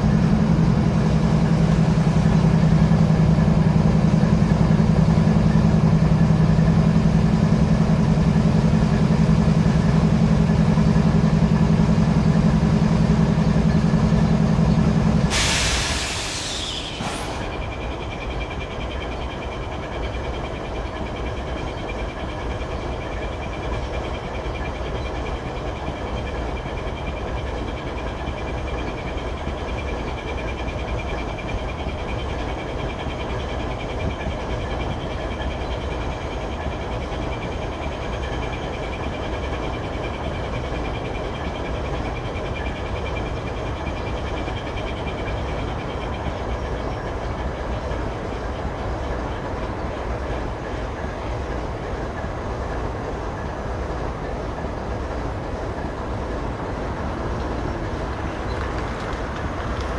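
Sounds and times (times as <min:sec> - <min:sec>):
freight train rumbling: 0:00.0 - 0:59.9.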